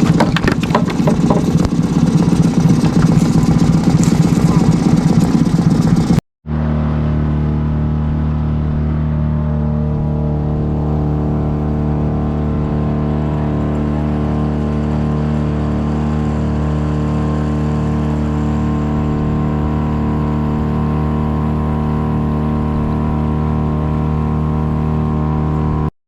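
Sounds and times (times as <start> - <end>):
outboard motor droning: 0.0 - 25.9.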